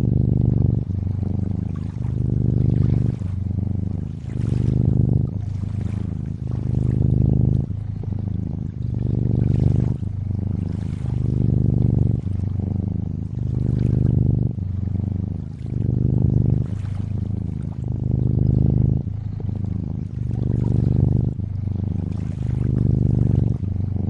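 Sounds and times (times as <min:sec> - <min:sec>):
cat purring: 0:00.0 - 0:24.0
faint water lapping: 0:00.0 - 0:24.0.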